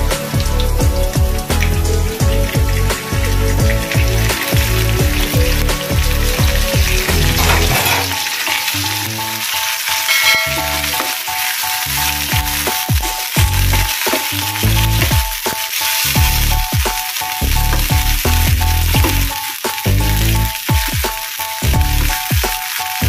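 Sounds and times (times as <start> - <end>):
background music: 0.0 - 23.0
food sizzling in hot oil: 0.0 - 23.0
metal ladle stirring in pan: 7.2 - 20.8.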